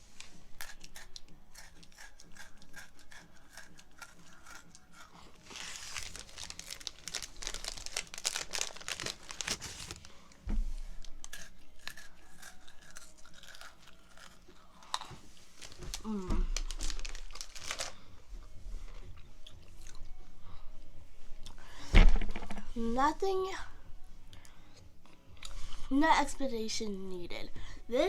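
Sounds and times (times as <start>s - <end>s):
biscuit sticks crunching: 0.2s - 10.0s, 11.0s - 18.0s
low thump: 10.5s - 10.9s.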